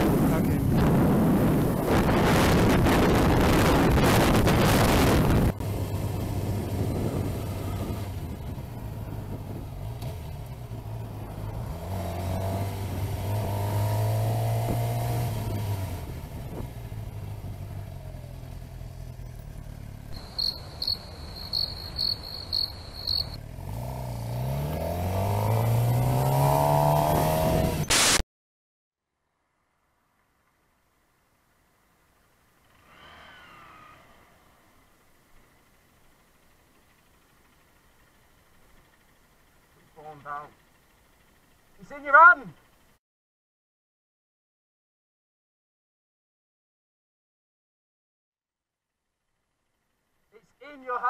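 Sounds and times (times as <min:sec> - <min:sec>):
wind rush on microphone: 0:00.0 - 0:09.8
motorcycle engine running: 0:00.0 - 0:27.8, 0:34.1 - 0:43.0, 0:48.9 - 0:51.0
high-pitched electronic beeps: 0:20.2 - 0:23.4.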